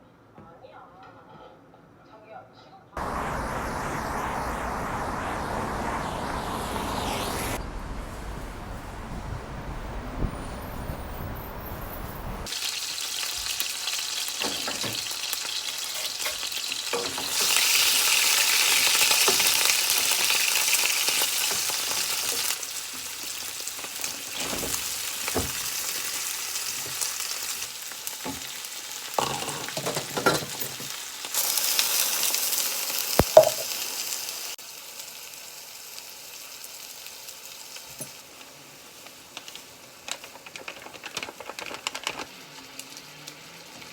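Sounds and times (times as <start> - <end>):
food sizzling in a pan: 12.4 - 40.5, 42.3 - 43.9.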